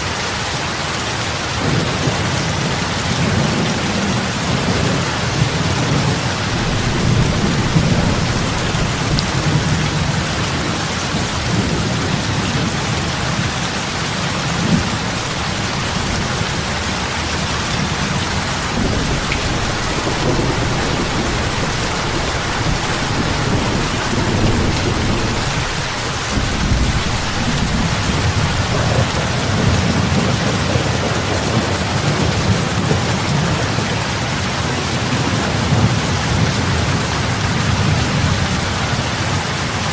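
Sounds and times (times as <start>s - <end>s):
heavy rain on water: 0.0s - 39.9s.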